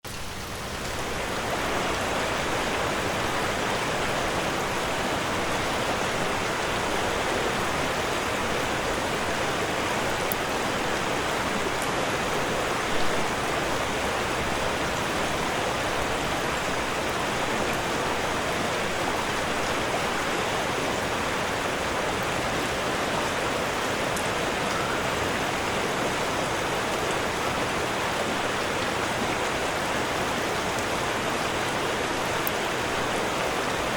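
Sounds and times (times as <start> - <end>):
rushing water: 0.0 - 33.9.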